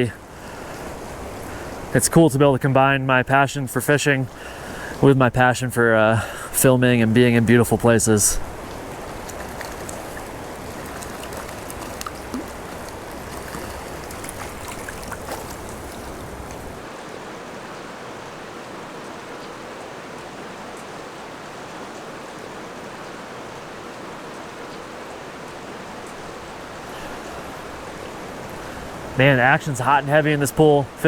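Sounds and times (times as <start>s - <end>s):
stream current rushing: 0.0s - 31.0s
faint clicks: 8.7s - 16.7s.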